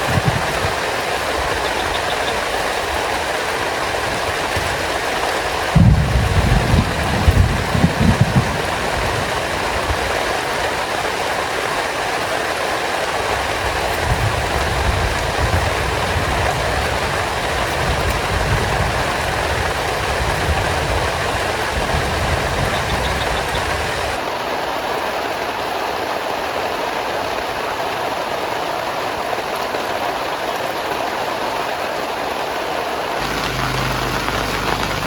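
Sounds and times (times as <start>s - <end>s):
heavy rain falling: 0.0s - 35.0s
low rumble: 33.2s - 35.0s.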